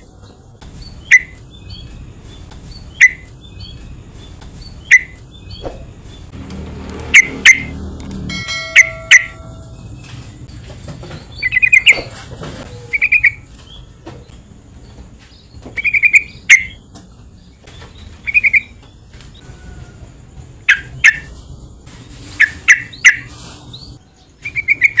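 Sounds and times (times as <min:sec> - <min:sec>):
sharp bird chirps: 0:00.6 - 0:07.8, 0:11.1 - 0:12.1, 0:12.9 - 0:13.9, 0:15.3 - 0:16.8, 0:17.5 - 0:19.4, 0:20.6 - 0:21.3, 0:22.0 - 0:25.0
bulbul calling: 0:02.8 - 0:03.8, 0:04.7 - 0:05.9, 0:08.5 - 0:09.7, 0:12.9 - 0:13.4, 0:15.7 - 0:16.8, 0:18.2 - 0:18.8, 0:20.6 - 0:21.3, 0:22.4 - 0:23.3, 0:24.4 - 0:25.0.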